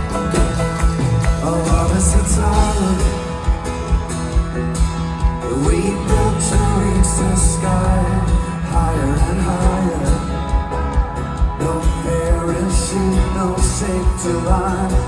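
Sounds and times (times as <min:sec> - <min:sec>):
person singing: 0:00.0 - 0:03.9, 0:05.4 - 0:15.0
live folk-rock band playing: 0:00.0 - 0:15.0
steady drum beat: 0:00.0 - 0:15.0.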